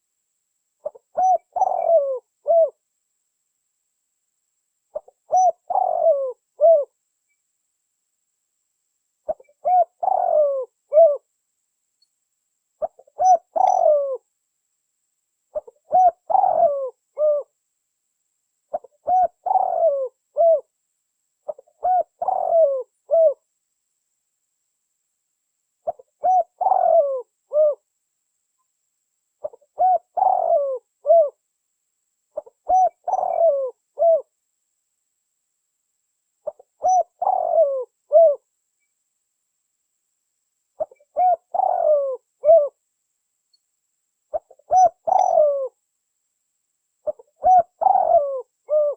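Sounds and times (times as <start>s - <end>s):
dove cooing: 0.8s - 2.8s, 4.9s - 7.0s, 9.2s - 11.3s, 12.8s - 14.2s, 15.5s - 17.5s, 18.7s - 20.7s, 21.4s - 23.4s, 25.8s - 27.9s, 29.4s - 31.4s, 32.4s - 34.3s, 36.4s - 38.4s, 40.8s - 42.8s, 44.3s - 45.8s, 47.0s - 48.9s.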